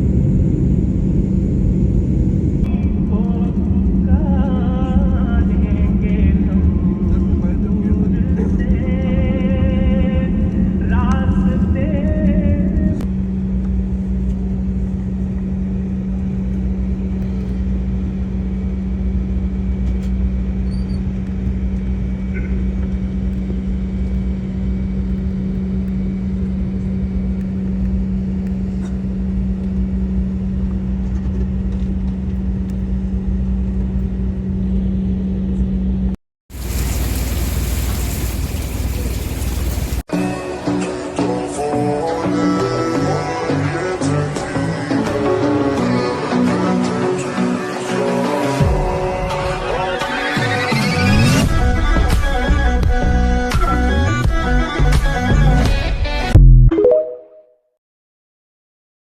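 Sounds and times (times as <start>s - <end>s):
loud even hiss: 36.5s - 40.1s.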